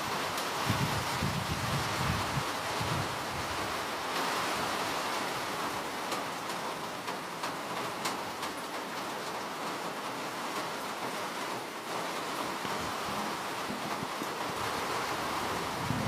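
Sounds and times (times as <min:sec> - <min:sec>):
steady rain hiss: 0:00.0 - 0:16.0
raindrop ticks: 0:06.0 - 0:11.0.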